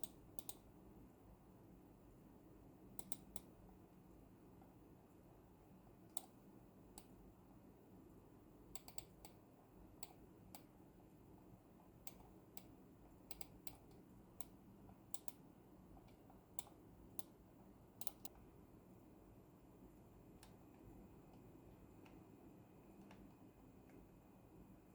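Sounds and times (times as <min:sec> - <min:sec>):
mouse buttons clicking: 0:00.0 - 0:00.6, 0:03.0 - 0:03.5, 0:08.8 - 0:09.4, 0:13.3 - 0:15.4, 0:18.0 - 0:18.4.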